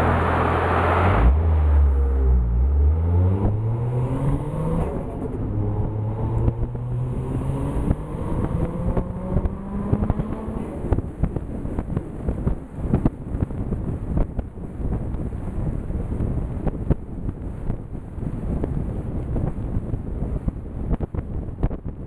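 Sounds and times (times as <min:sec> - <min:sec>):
exhaust crackles: 0:00.0 - 0:14.4.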